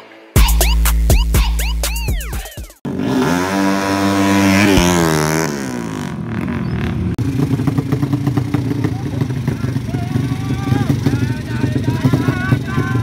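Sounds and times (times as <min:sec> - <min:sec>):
racing motorcycle engine revving: 0:02.8 - 0:13.0.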